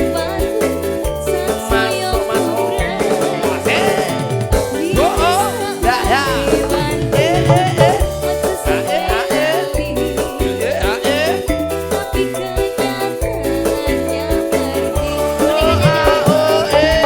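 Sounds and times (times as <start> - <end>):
bass notes: 0.0 - 17.0
sliding melodic lead: 0.0 - 17.0
drum hits: 15.5 - 17.0.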